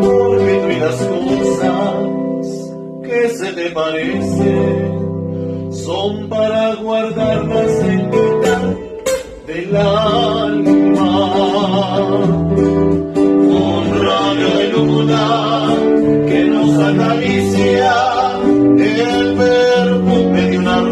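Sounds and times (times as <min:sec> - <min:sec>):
group singing: 0:00.0 - 0:02.2, 0:09.5 - 0:20.9
acoustic guitar: 0:00.0 - 0:20.9.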